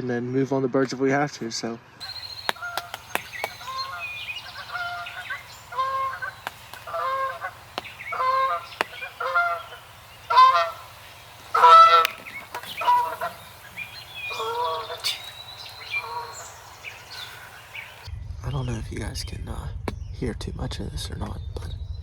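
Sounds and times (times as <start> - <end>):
sharp clicks: 2.0 - 5.4, 6.4 - 9.4
geese honking: 2.0 - 18.1.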